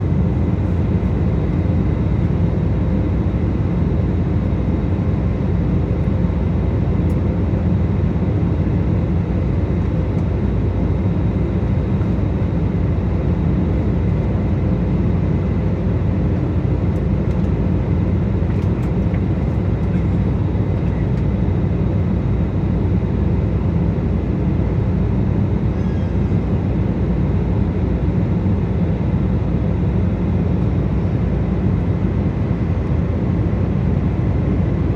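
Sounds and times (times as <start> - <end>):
low rumble of jet engines: 0.0 - 34.9.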